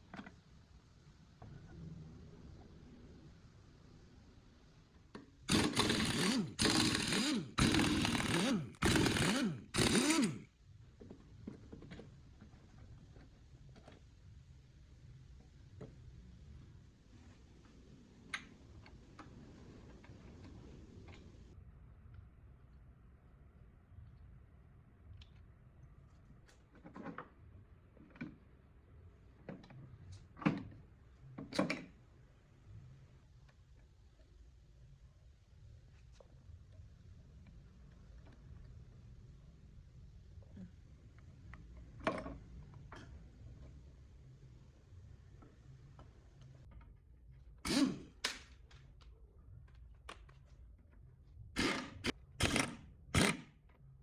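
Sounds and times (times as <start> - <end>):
parts knocking and scraping: 5.5 - 10.4.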